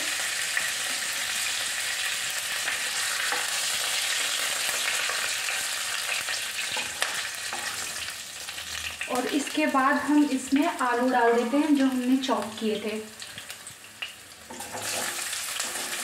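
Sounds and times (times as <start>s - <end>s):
spices sizzling in hot oil: 0.0s - 16.0s
spatula scraping a pan: 6.3s - 8.1s, 14.5s - 16.0s.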